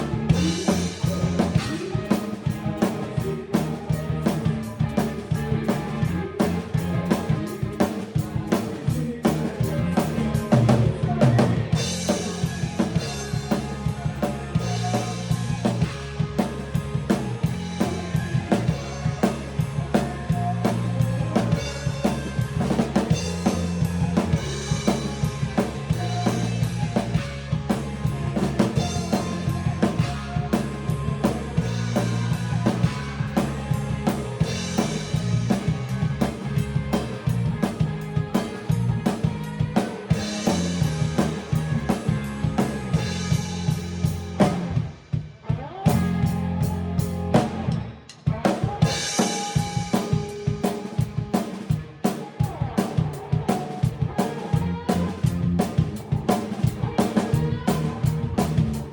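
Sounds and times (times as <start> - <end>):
bass and backing instruments: 0.0 - 58.9
drum kit rock groove: 0.0 - 58.9.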